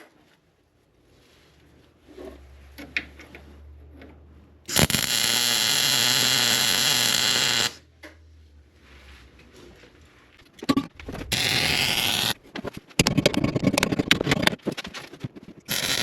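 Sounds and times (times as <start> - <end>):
welding crackling buzz: 4.7 - 7.8, 11.3 - 12.4, 15.7 - 16.0.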